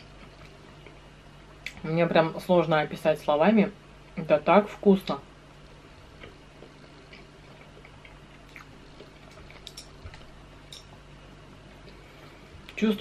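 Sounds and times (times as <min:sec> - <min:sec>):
chewing soft food: 0:00.0 - 0:01.8, 0:05.6 - 0:12.8
wet mouth clicks and smacks: 0:07.1 - 0:10.3.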